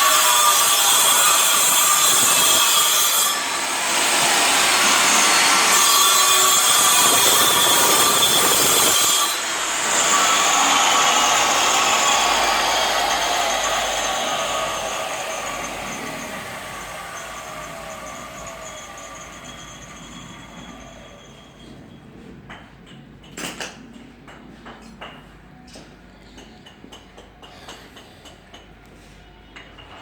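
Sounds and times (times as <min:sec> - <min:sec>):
power cutting tool: 0:00.0 - 0:21.4.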